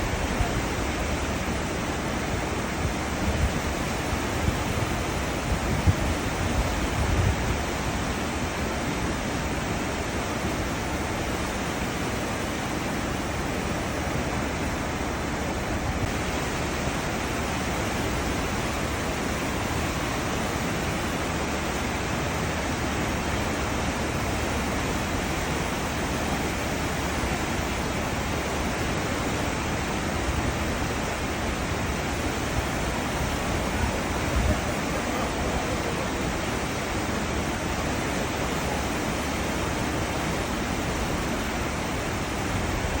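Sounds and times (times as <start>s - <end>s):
churning seawater rushing: 0.0s - 43.0s.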